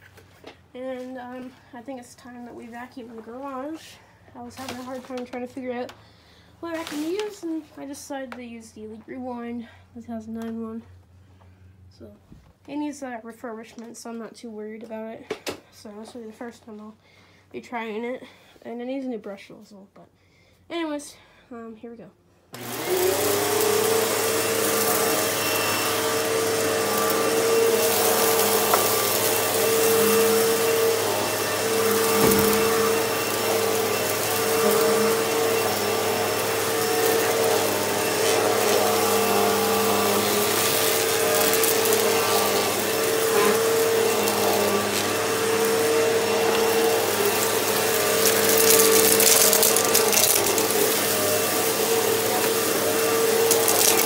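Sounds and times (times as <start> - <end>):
vacuum cleaner running: 6.6 - 7.7, 22.5 - 54.0.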